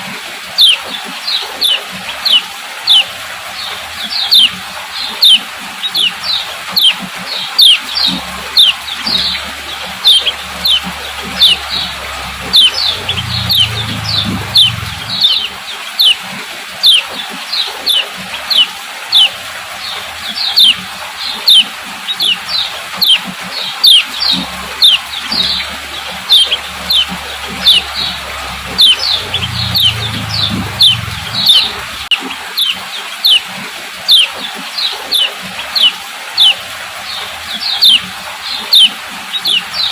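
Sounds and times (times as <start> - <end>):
bird giving sharp high calls: 7.6 - 16.2, 21.4 - 22.4, 23.8 - 33.4, 38.7 - 39.7.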